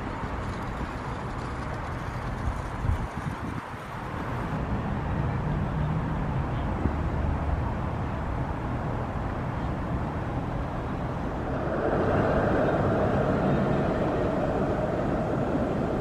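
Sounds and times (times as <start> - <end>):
traffic noise: 0.0 - 16.0
tram motor hum: 9.9 - 16.0.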